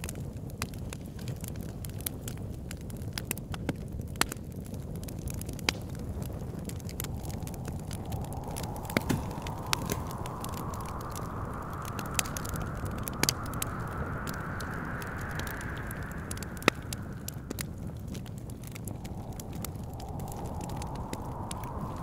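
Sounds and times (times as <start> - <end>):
low rumble of wind: 0.0 - 22.0
wood fire crackling and popping: 0.0 - 22.0
thin wind whistle: 6.0 - 22.0.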